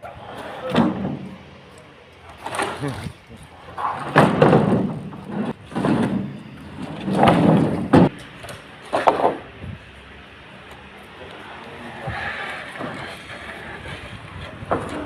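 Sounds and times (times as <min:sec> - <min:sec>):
heavy knocks and thumps: 0:03.9 - 0:08.2.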